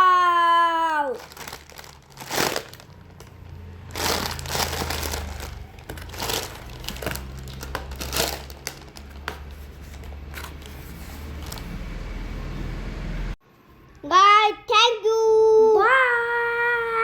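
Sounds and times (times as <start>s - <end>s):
packaging rustling: 1.2s - 11.8s.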